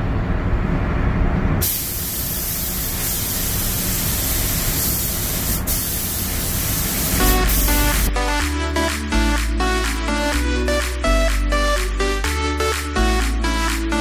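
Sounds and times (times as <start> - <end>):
paint spray gun hissing: 1.6 - 8.1.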